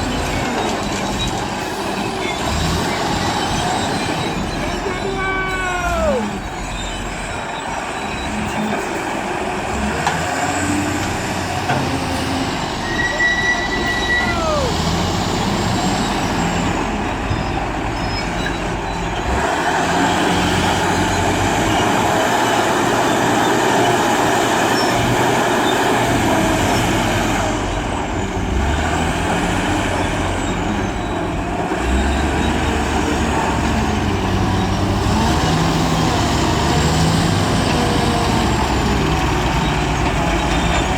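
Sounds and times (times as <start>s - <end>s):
wheel loader diesel engine: 0.0s - 40.9s
short squeals: 12.8s - 19.3s.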